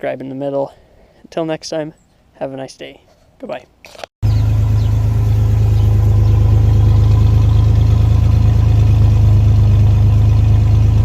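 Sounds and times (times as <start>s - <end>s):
truck engine running loud: 4.2s - 11.0s.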